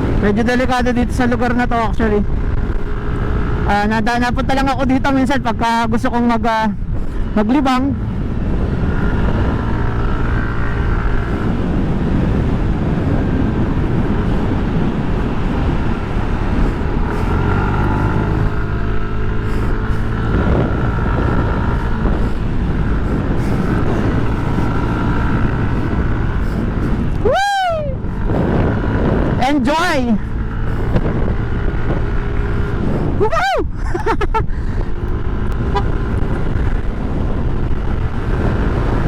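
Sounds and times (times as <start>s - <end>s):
motorcycle engine running: 0.0s - 39.0s
wind rushing over microphone: 0.0s - 39.0s
short rising and falling cry: 23.0s - 28.7s.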